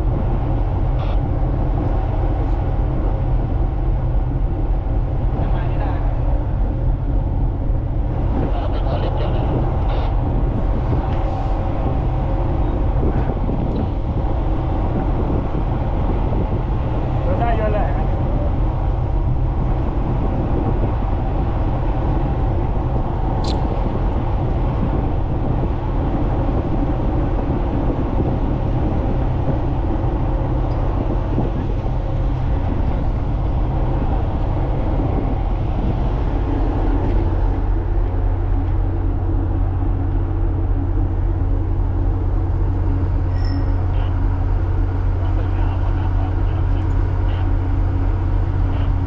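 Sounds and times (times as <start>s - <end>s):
ship diesel machinery drone: 0.0s - 49.0s
brief click: 23.4s - 23.6s.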